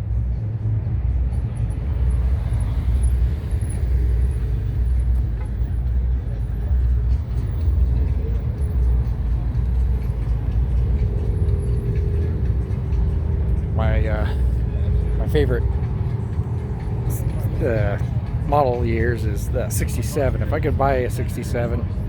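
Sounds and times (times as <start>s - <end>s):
car engines rumbling: 0.0s - 22.0s.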